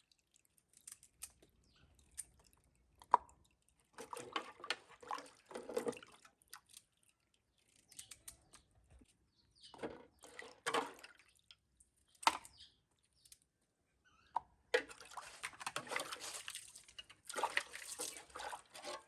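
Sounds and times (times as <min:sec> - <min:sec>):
water splashing and sloshing: 0:02.4 - 0:07.9, 0:09.8 - 0:11.6, 0:14.8 - 0:19.0.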